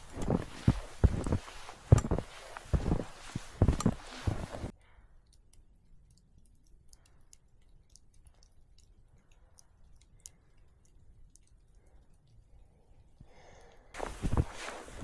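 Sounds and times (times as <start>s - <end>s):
soft hiss: 0.0s - 4.7s, 13.3s - 15.0s
faint small clicks: 0.0s - 15.0s.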